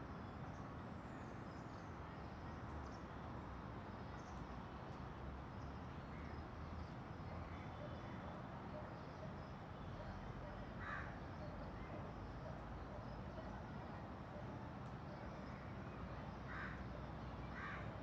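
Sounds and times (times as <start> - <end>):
steady background noise: 0.0 - 18.0
faint bird calls: 10.0 - 11.9.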